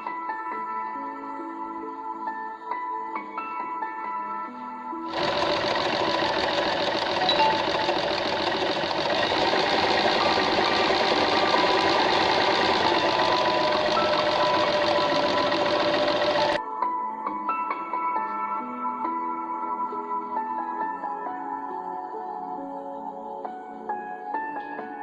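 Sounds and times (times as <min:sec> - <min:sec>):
electric sewing machine stitching: 0:05.1 - 0:16.6.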